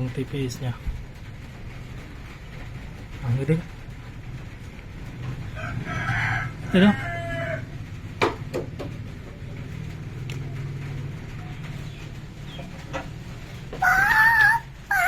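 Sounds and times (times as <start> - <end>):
rooster crowing: 5.5 - 7.8, 13.8 - 15.0.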